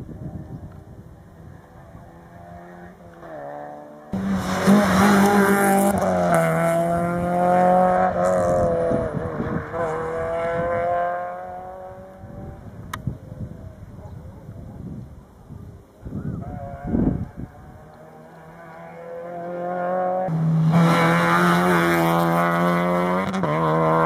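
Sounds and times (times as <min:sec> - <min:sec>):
rally car engine at high revs: 0:01.9 - 0:12.5, 0:16.6 - 0:24.0.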